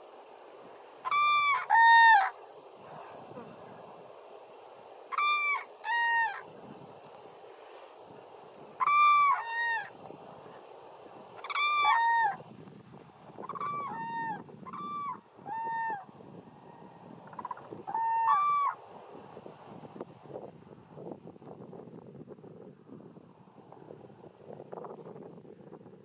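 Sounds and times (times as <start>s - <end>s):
steady background hiss: 0.0s - 26.0s
cranes trumpeting calls: 1.0s - 3.8s, 5.1s - 6.5s, 8.8s - 10.7s, 11.4s - 12.5s, 13.4s - 18.8s.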